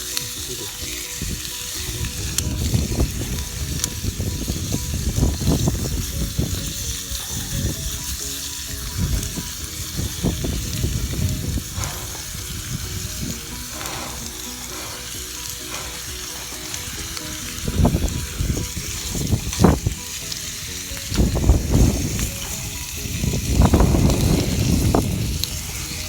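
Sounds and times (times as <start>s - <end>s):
steak sizzling in a pot: 0.0s - 26.0s.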